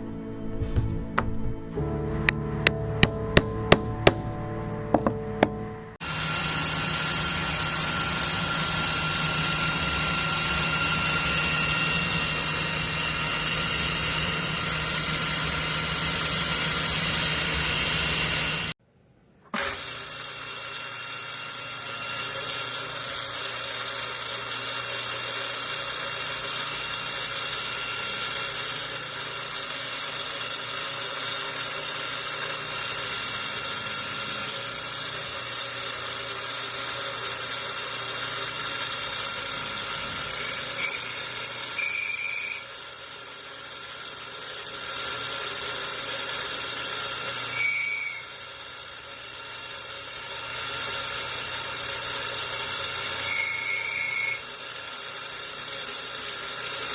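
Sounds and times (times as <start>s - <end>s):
power tool cutting wood: 0.0s - 18.8s, 19.5s - 56.9s
short high squeals: 40.0s - 42.8s, 47.4s - 48.4s, 53.2s - 54.4s.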